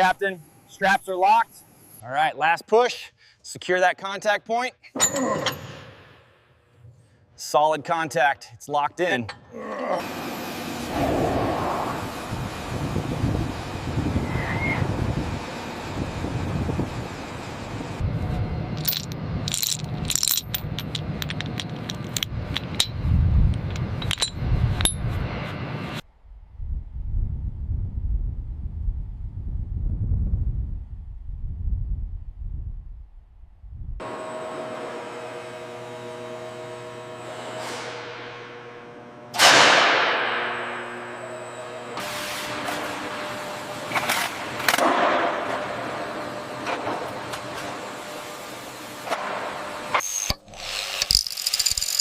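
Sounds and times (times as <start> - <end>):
steady hum of fixed tones: 0.0 - 26.0
loud whoosh falling in pitch: 10.9 - 12.9
low rumble: 17.9 - 34.0
metallic clinks and rattles: 18.8 - 23.0, 23.6 - 25.0, 51.0 - 52.0.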